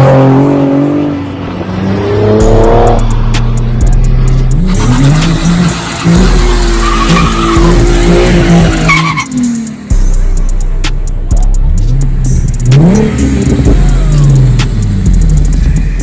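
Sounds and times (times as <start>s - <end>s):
car engine revving: 0.0s - 16.0s
tire squeals: 4.4s - 9.9s.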